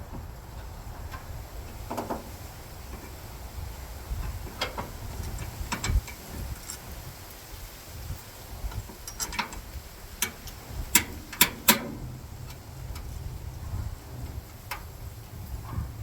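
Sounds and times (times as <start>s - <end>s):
steady low rumble: 0.0s - 16.0s
hand tools clicking on metal: 4.1s - 7.0s, 8.7s - 13.1s.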